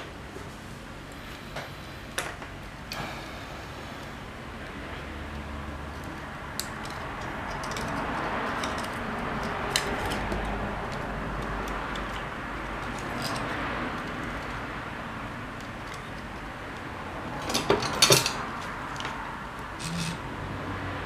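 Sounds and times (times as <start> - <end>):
small parts clicking and tapping: 4.6 - 20.2.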